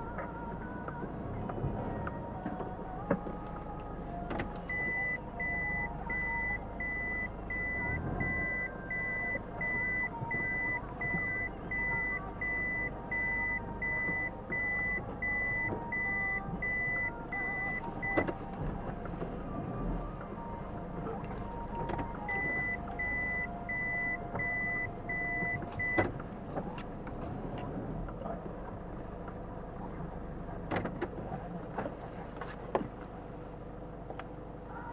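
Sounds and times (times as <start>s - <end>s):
car running hum: 0.0s - 34.9s
reversing warning beeps: 4.7s - 18.2s, 22.2s - 26.1s
click: 34.1s - 34.3s.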